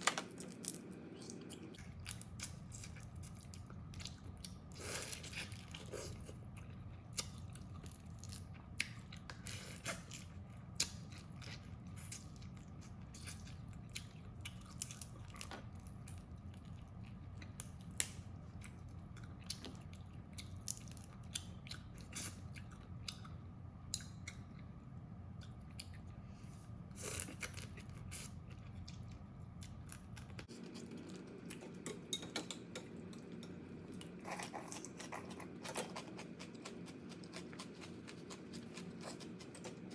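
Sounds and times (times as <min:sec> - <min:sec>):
steady low hum: 0:00.0 - 0:39.9
chewing: 0:27.0 - 0:39.9.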